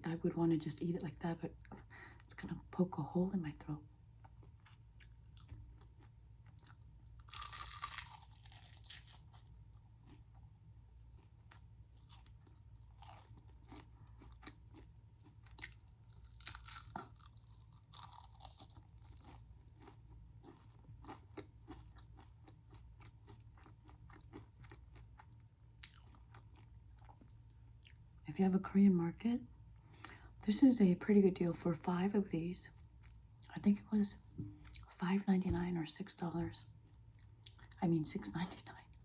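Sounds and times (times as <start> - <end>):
faint low hum: 0.0 - 39.0
crunching bites of crispy food: 4.3 - 10.4, 11.2 - 28.0.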